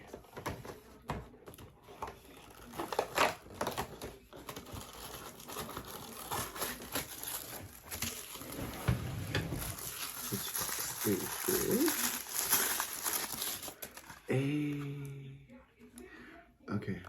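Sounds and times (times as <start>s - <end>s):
packaging crinkling and tearing: 1.5s - 8.5s, 9.6s - 14.3s.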